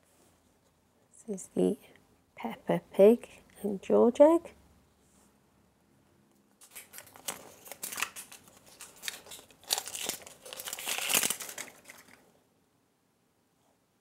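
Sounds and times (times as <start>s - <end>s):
wrapper crinkling and tearing: 6.6s - 12.2s.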